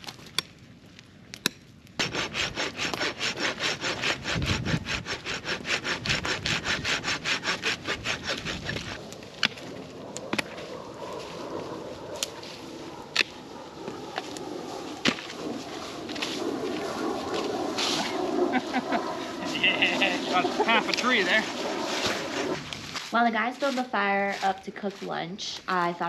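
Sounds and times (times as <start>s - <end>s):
hand saw cutting wood: 2.0s - 9.6s, 18.8s - 22.8s.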